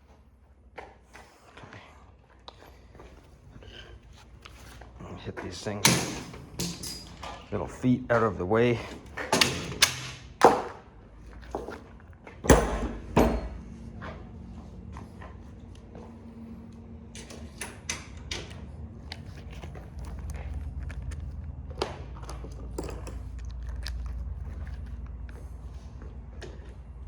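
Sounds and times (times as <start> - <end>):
small metal clanks and rattles: 5.5 - 7.6, 22.2 - 23.9
loud knocks on metal: 12.4 - 13.6.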